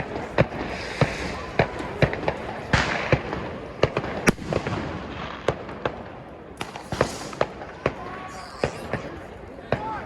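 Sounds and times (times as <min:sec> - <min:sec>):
fireworks crackling hiss: 0:00.0 - 0:09.4
fireworks bangs and cracks: 0:00.0 - 0:10.0.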